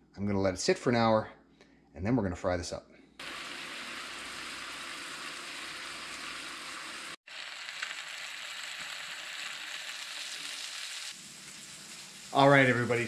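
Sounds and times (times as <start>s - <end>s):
fish sizzling in a pan: 3.2s - 13.0s.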